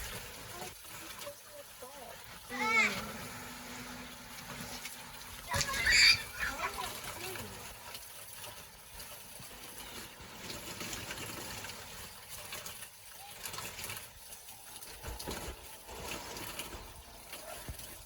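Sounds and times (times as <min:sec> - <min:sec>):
rain falling: 0:00.0 - 0:07.9, 0:15.0 - 0:18.0
water trickling: 0:00.0 - 0:18.0.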